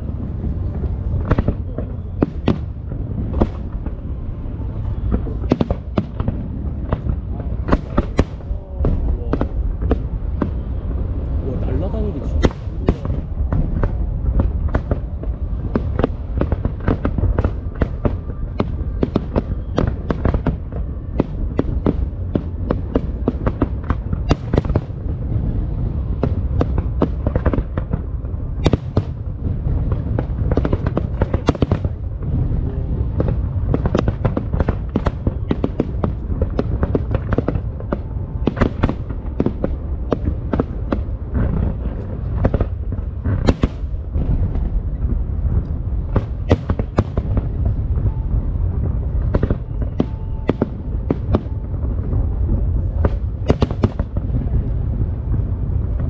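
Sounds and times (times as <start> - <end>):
fireworks bangs and crackles: 0.0 - 56.0
low rumble of booms: 0.0 - 56.0.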